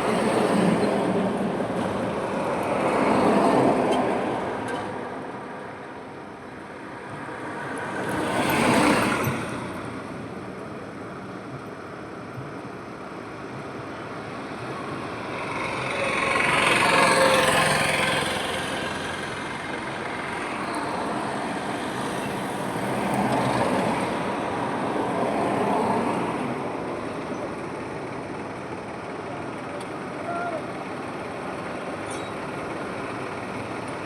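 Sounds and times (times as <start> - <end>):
highway traffic passing: 0.0 - 34.0.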